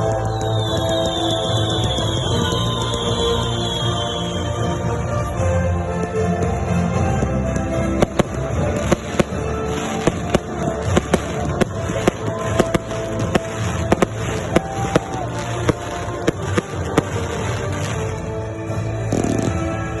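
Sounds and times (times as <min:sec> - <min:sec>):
loud music: 0:00.0 - 0:20.0
fireworks sharp bangs: 0:07.1 - 0:19.9.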